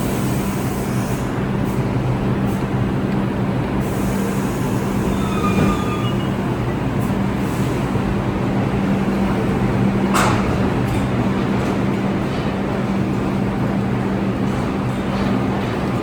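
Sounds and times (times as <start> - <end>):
subway train rumbling: 0.0 - 16.0
wheel squeal: 4.6 - 6.6.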